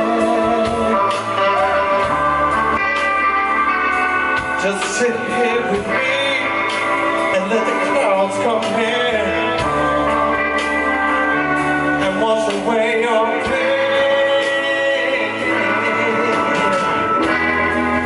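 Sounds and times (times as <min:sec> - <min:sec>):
man singing: 0:00.0 - 0:02.2, 0:04.6 - 0:10.3, 0:11.9 - 0:17.4
blues-rock band playing: 0:00.0 - 0:18.0
electric guitar bending notes: 0:00.0 - 0:18.0.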